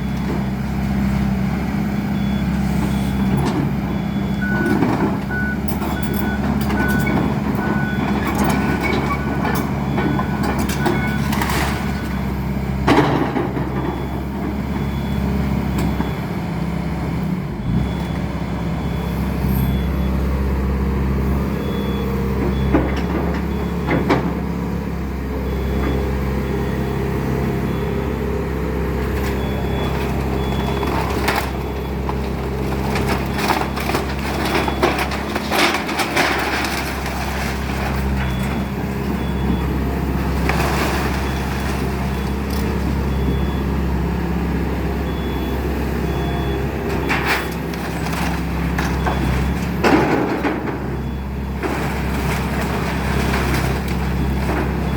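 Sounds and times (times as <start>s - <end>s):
excavator diesel engine running: 0.0s - 54.9s
backup alarm beeping: 37.9s - 40.2s, 41.0s - 44.2s, 44.8s - 49.8s.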